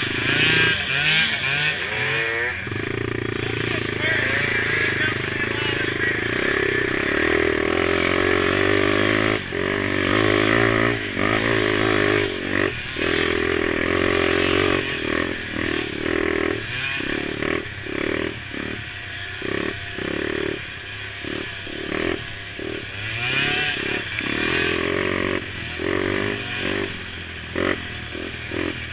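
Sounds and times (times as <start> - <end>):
quad engines revving: 0.0 - 28.9.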